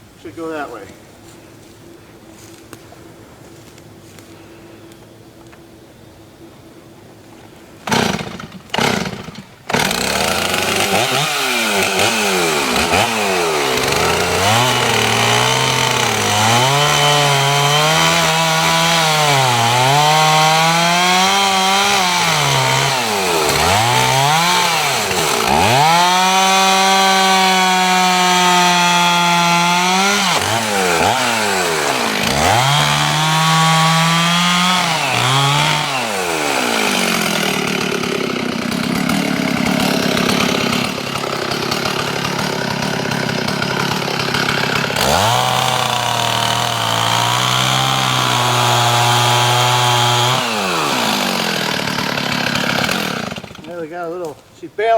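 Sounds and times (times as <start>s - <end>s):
chainsaw cutting wood: 7.8s - 54.5s.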